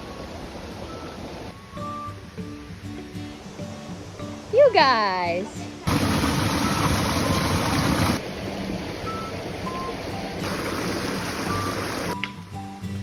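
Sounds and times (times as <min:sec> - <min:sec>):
waterfall rushing: 0:05.9 - 0:12.2.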